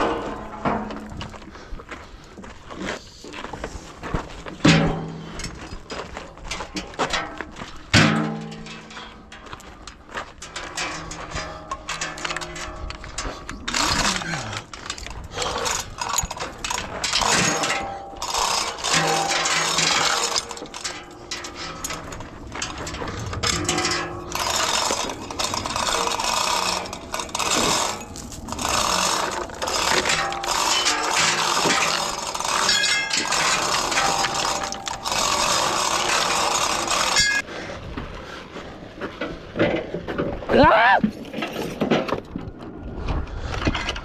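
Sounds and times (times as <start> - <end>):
metal clatter: 0.0 - 2.4, 3.2 - 37.5
power tool spinning: 13.2 - 37.4
loud steady noise: 13.7 - 37.4.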